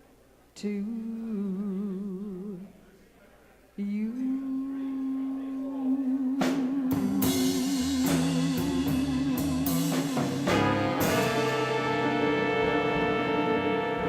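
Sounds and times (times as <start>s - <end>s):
drum and cymbal strikes: 6.4s - 12.6s
held note with vibrato: 6.9s - 14.0s
stepping bass notes: 6.9s - 14.0s
sustained horn chord: 7.2s - 14.0s.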